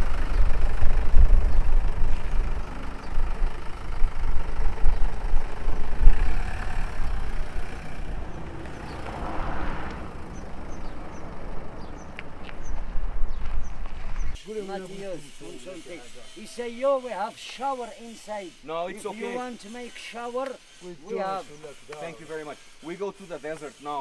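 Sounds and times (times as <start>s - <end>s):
car engine driving by: 0.0s - 14.3s.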